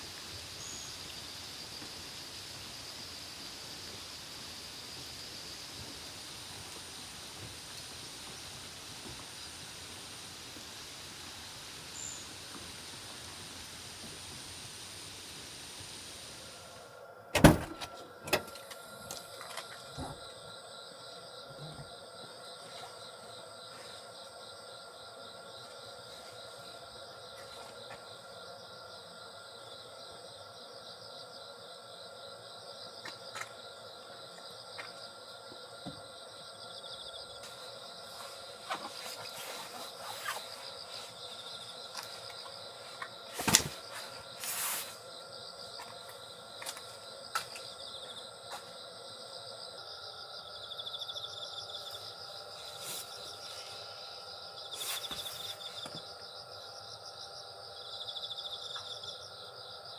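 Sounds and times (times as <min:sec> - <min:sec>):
crickets trilling: 0:00.0 - 0:59.9
short rustle: 0:42.1 - 0:45.1, 0:54.8 - 0:55.8.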